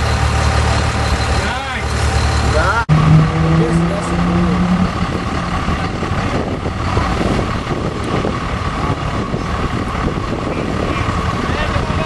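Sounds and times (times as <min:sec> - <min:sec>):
diesel pickup truck engine running: 0:00.0 - 0:12.0.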